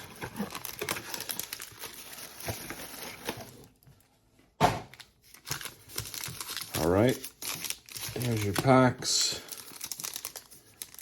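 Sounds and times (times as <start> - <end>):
cardboard box rustling: 0.0 - 3.7.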